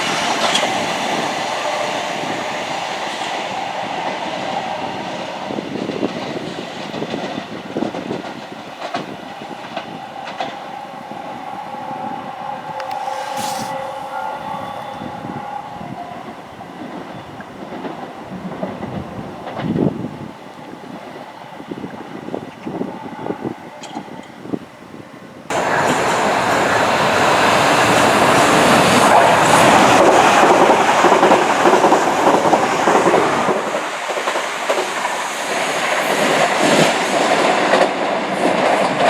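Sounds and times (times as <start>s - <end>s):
wheels clicking over rail joints: 0.0s - 14.8s
train passing: 0.0s - 39.0s
steady whine: 7.0s - 24.0s.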